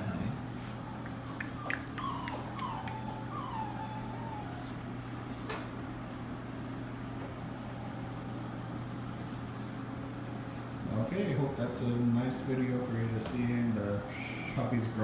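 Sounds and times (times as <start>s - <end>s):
puppies whining: 0.0s - 5.1s, 9.9s - 10.6s.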